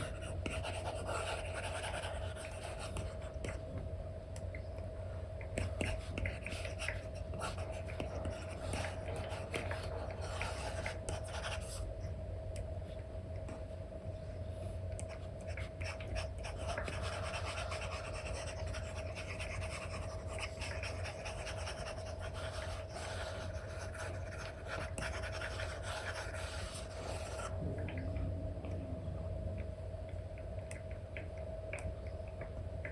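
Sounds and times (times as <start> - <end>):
stylus scratching on screen: 0.0 - 3.6, 5.6 - 11.9, 15.0 - 28.1
faint steady hum: 0.0 - 32.9.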